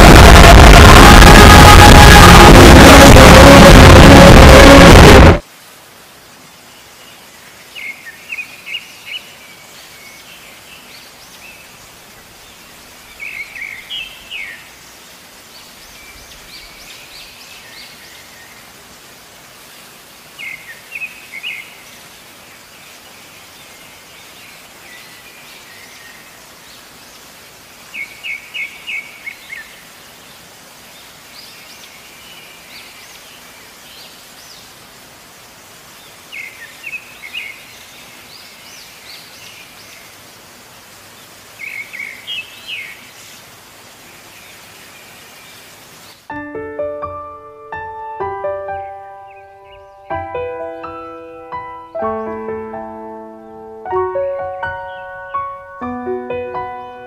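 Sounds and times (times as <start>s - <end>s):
steady background hiss: 0.0s - 57.0s
bird song phrase: 48.8s - 51.2s, 54.7s - 55.6s.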